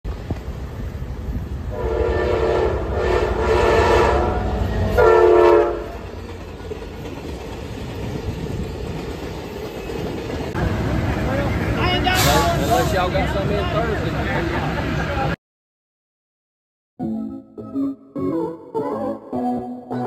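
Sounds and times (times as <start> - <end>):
train rumbling on rails: 0.1 - 15.4
train horn blasts: 1.7 - 6.0.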